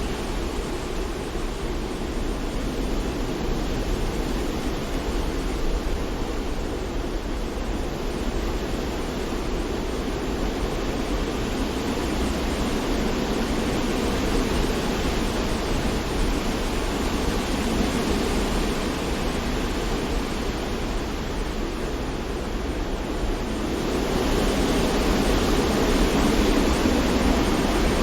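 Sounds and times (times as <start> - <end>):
wind: 0.0 - 28.0
sea surf: 10.2 - 28.0.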